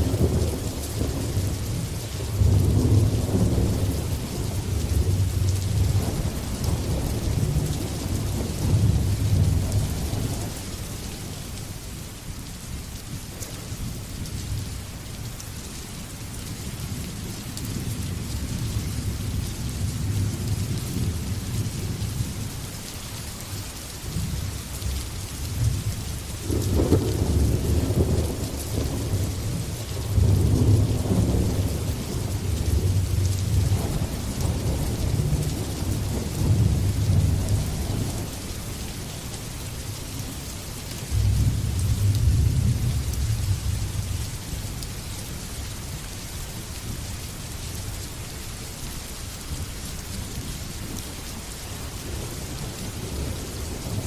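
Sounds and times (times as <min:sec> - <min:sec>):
thunder rumbling: 0:00.0 - 0:10.7, 0:25.5 - 0:38.9, 0:41.1 - 0:44.4
heavy rain hissing: 0:00.0 - 0:54.0.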